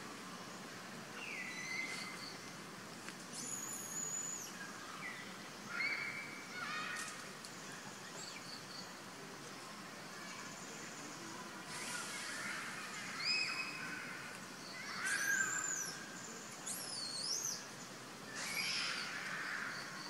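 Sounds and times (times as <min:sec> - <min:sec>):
outdoor background hiss: 0:00.0 - 0:20.0
bird calls and whistles: 0:01.2 - 0:02.5, 0:03.3 - 0:07.2, 0:11.7 - 0:20.0.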